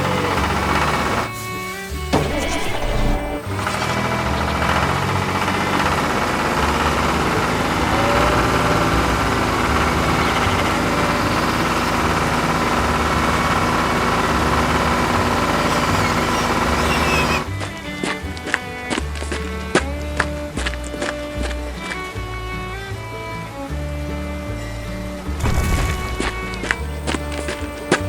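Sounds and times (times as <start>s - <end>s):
heavy machine engine rumbling: 0.0s - 28.0s.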